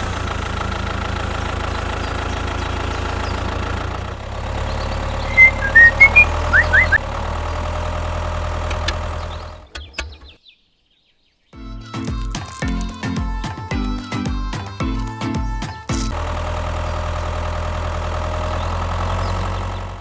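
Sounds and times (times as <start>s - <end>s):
small engine running: 0.0s - 9.7s, 15.9s - 20.0s.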